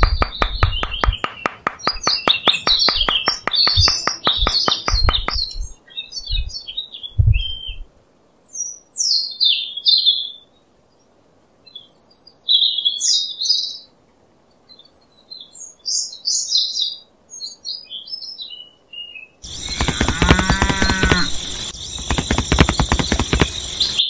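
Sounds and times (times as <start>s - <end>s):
hammer tapping posts: 0.0s - 5.7s, 19.5s - 24.0s
small birds twittering: 0.0s - 7.8s, 14.7s - 24.0s.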